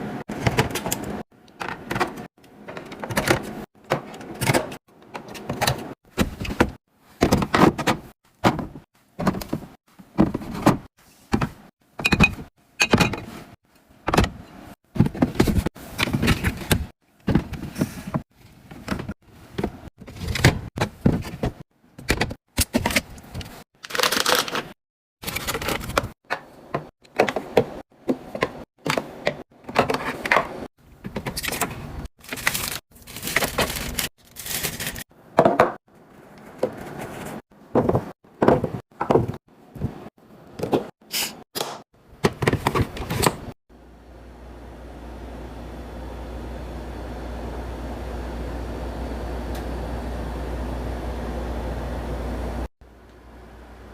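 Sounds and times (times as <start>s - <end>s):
containers and drawers clattering: 0.2s - 13.5s, 14.1s - 35.8s, 36.4s - 43.6s.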